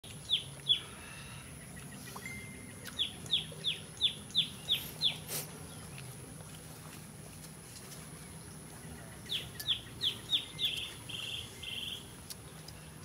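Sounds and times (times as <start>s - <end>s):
bird whistling calls: 9.3s - 12.1s.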